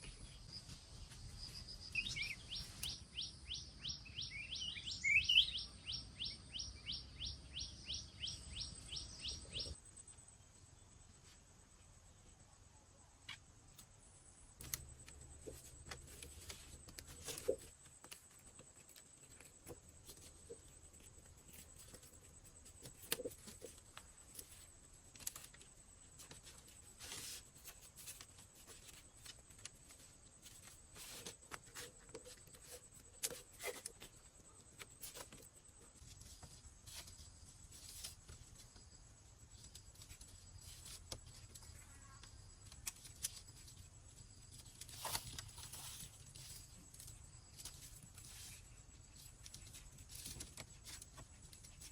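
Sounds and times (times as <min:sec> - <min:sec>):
light clicks and rustles of hand work: 0:14.6 - 0:51.9.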